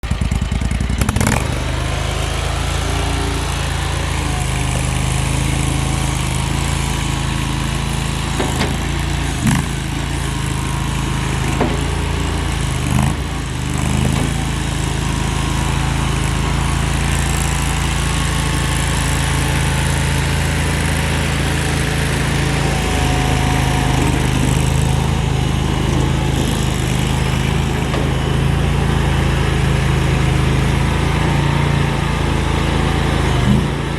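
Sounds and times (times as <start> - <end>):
skid steer loader engine running: 0.0 - 33.9.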